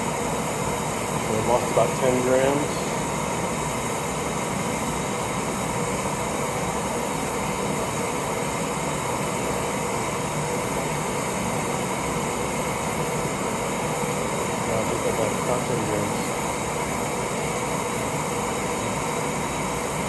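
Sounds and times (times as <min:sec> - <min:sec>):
camp stove burner hissing: 0:00.0 - 0:20.0.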